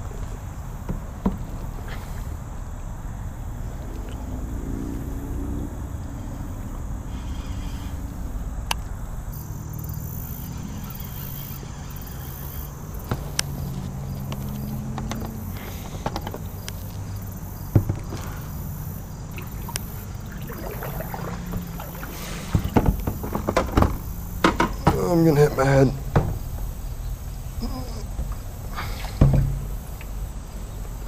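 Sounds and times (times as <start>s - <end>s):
steady low hum: 0.0s - 31.0s
paddle strokes: 10.2s - 26.8s
paddle knocking against kayak: 10.8s - 26.8s, 28.1s - 30.2s.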